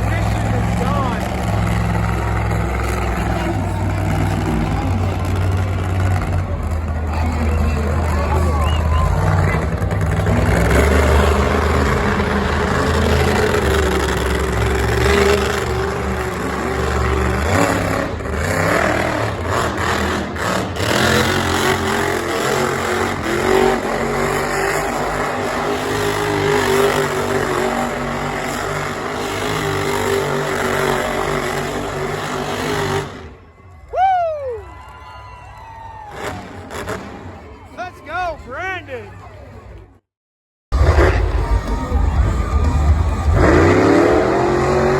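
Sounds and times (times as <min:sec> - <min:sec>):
racing engine running hard: 0:00.0 - 0:33.4, 0:40.7 - 0:44.9.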